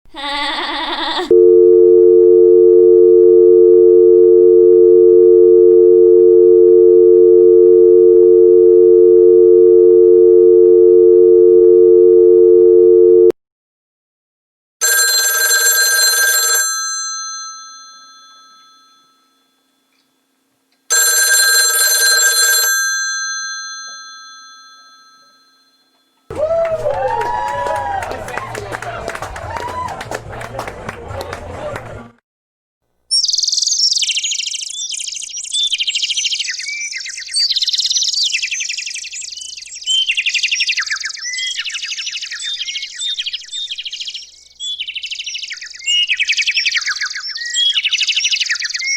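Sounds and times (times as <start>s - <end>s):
telephone bell ringing: 1.3s - 13.3s, 14.8s - 19.8s, 20.9s - 26.2s
telephone dial tone hum: 1.3s - 13.4s, 14.8s - 17.1s, 20.9s - 23.1s.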